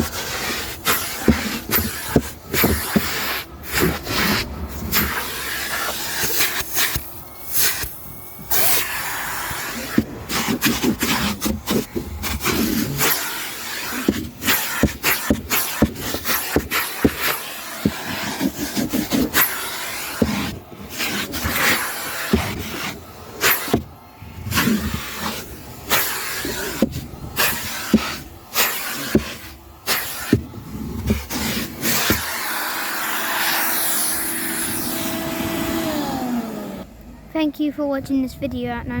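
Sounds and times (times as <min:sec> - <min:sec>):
objects being handled and bumped: 0:00.0 - 0:07.0, 0:09.8 - 0:32.4.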